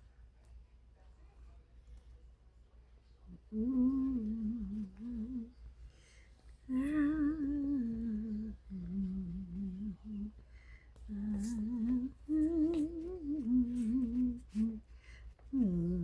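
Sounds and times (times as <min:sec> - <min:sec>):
woman humming a tune: 0:03.3 - 0:05.6, 0:06.7 - 0:10.4, 0:11.1 - 0:14.9, 0:15.5 - 0:16.0.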